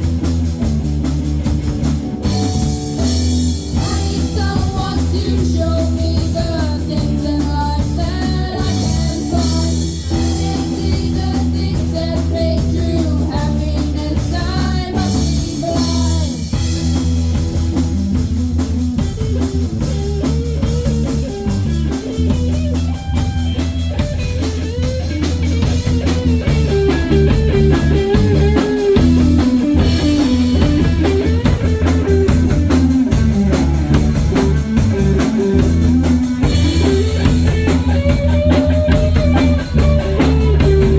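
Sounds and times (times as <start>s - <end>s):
live rock band playing: 0.0s - 40.9s
person singing: 3.7s - 16.6s.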